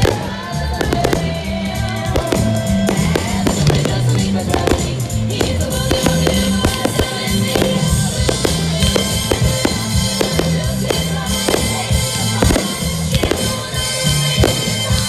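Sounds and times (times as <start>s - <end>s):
fireworks bursting: 0.0s - 15.0s
music with steady beat: 0.0s - 15.0s.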